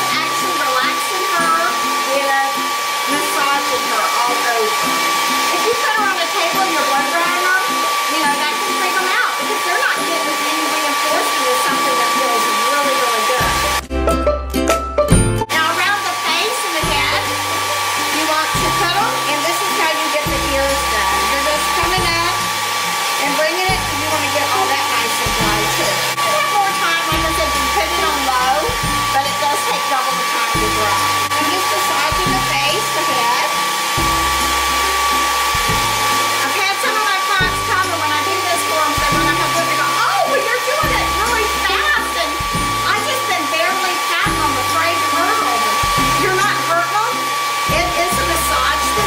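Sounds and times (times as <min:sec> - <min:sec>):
hair dryer running: 0:00.0 - 0:13.9, 0:15.4 - 0:49.0
background music with bass line: 0:13.5 - 0:15.6, 0:33.8 - 0:36.4, 0:45.8 - 0:46.3.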